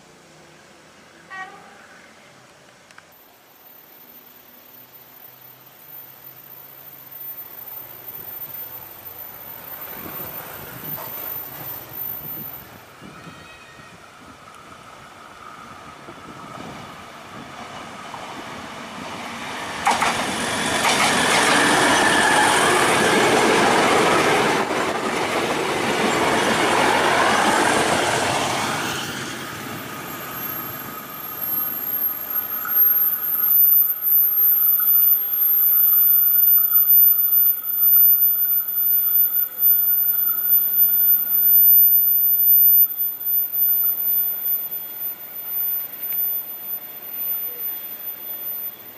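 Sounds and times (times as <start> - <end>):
thin high-pitched whine: 1.1 - 12.9, 29.8 - 48.9
wavering wheel squeal: 3.2 - 14.1, 20.6 - 24.4, 28.3 - 48.9
train wheels rushing on rail: 7.8 - 46.2.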